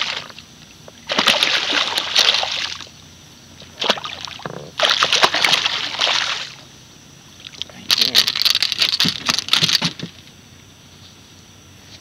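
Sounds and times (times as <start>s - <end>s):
water splashing and sloshing: 0.0s - 3.0s, 3.6s - 6.7s.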